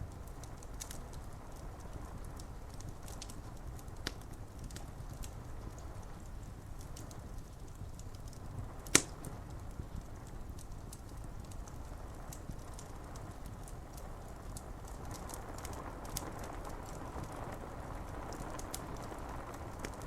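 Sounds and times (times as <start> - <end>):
wood fire crackling: 0.0 - 20.0
sharp fire pop: 8.8 - 9.4.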